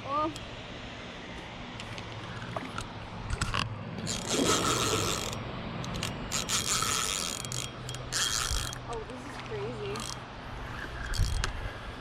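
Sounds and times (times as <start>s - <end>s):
fishing reel drag ratcheting: 3.3s - 11.6s.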